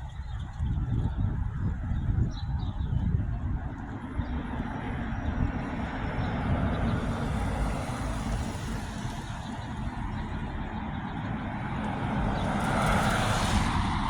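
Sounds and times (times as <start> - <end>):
low traffic rumble: 0.0 - 14.0
vehicle passing: 3.1 - 14.0.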